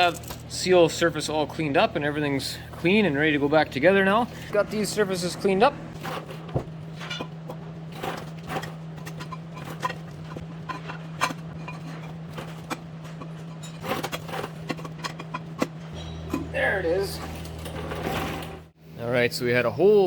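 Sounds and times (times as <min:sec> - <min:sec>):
metal parts clicking and knocking: 0:00.0 - 0:00.6, 0:06.9 - 0:18.5
steady low hum: 0:00.0 - 0:20.0.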